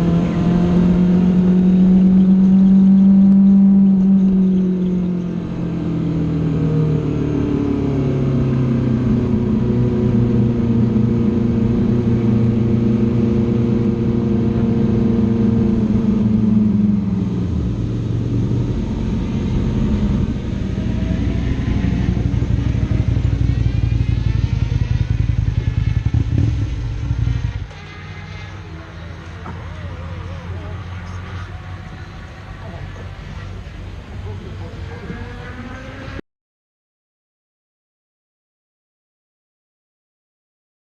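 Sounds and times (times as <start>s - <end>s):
motorcycle engine running: 0.0s - 36.2s.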